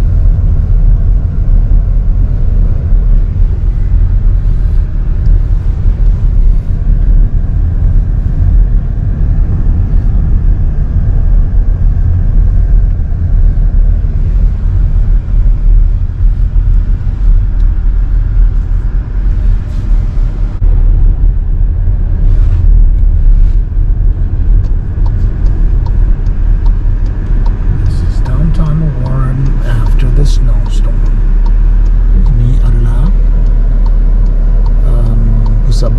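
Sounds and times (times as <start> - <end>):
low rumble: 0.0 - 35.9.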